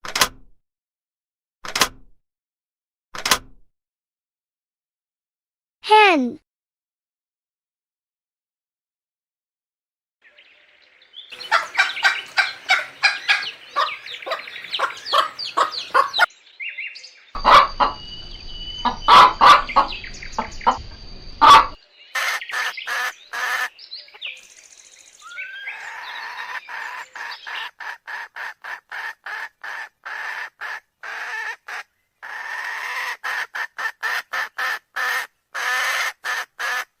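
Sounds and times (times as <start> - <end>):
hens clucking: 11.3 - 16.3, 17.4 - 18.0, 18.8 - 20.8, 21.4 - 23.7.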